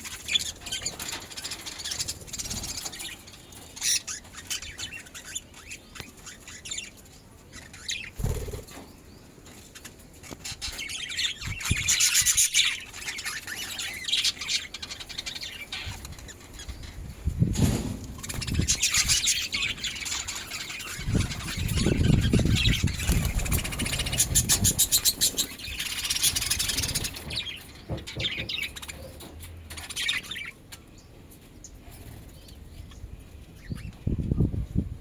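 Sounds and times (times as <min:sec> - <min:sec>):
budgerigars chirping: 0:00.0 - 0:08.8, 0:09.7 - 0:17.1, 0:18.2 - 0:31.0
wings flapping: 0:08.1 - 0:08.8, 0:21.0 - 0:27.4.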